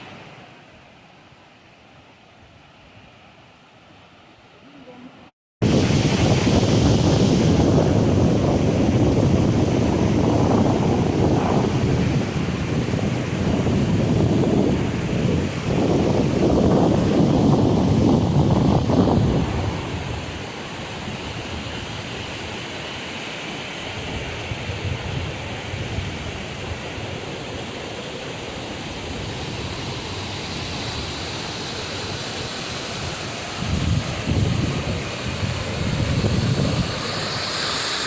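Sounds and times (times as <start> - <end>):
wind buffeting microphone: 5.6 - 22.1, 33.0 - 37.5
waterfall rushing: 26.6 - 38.0.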